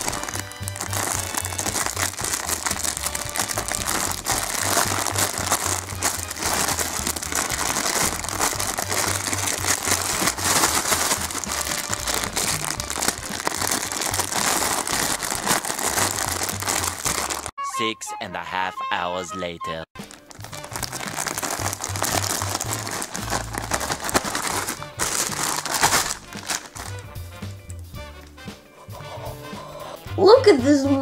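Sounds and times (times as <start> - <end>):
plastic packaging crinkling: 0.0 - 17.5, 20.0 - 27.1
background music with bass line: 0.0 - 31.0.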